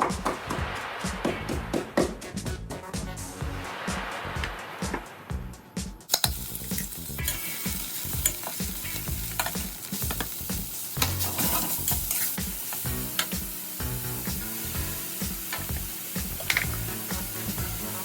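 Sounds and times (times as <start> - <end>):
food sizzling in a pan: 6.1 - 18.0.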